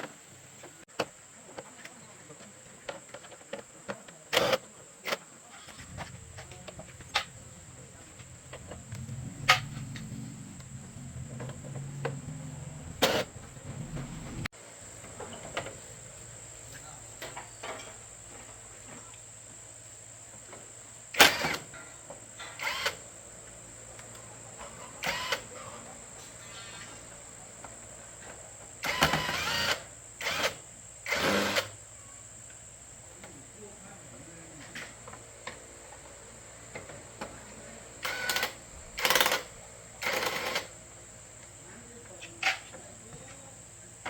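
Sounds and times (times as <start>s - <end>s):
thin high whine: 5.6s - 14.5s
low steady hum: 5.7s - 14.5s.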